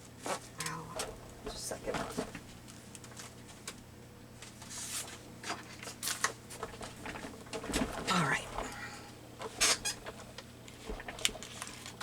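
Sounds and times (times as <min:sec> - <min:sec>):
paper rustling: 0:10.7 - 0:12.0.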